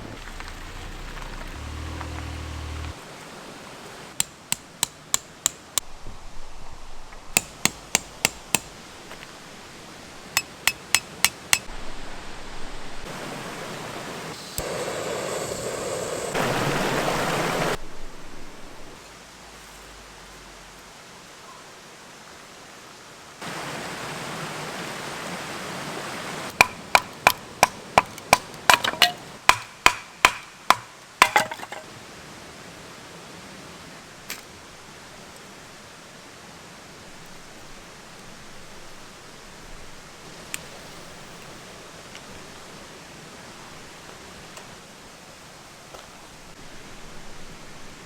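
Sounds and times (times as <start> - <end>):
background hiss: 0.0 - 48.0
hard ringing strikes: 10.4 - 11.7.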